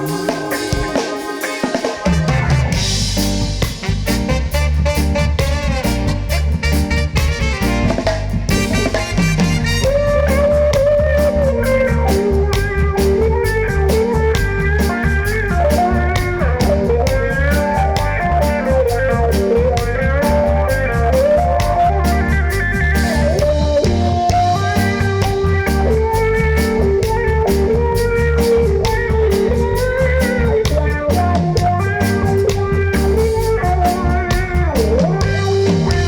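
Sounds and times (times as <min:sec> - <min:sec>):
gliding lead melody: 0:00.0 - 0:04.3
reggae band playing: 0:00.0 - 0:36.0.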